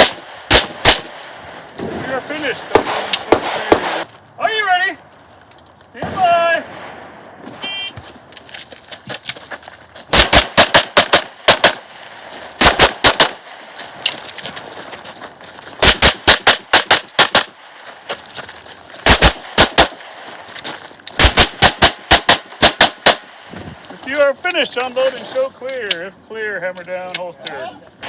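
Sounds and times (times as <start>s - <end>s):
rapid pistol fire: 0.0s - 1.3s, 2.7s - 4.0s, 10.1s - 13.5s, 15.8s - 17.6s, 19.0s - 20.1s, 21.2s - 23.3s.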